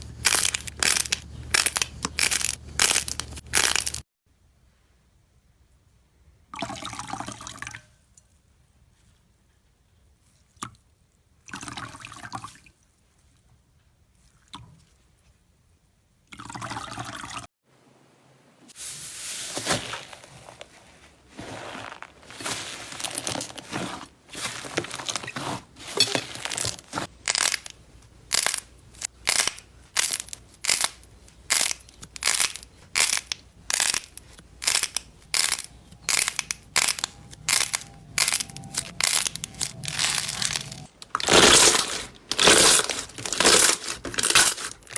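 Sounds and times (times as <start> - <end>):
slime squishing by hand: 0.0 - 4.0, 18.8 - 44.9.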